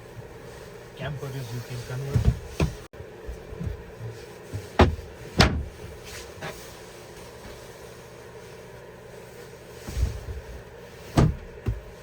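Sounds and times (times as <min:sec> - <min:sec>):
knocks and thuds of fittings: 0:04.5 - 0:06.0, 0:11.2 - 0:12.0.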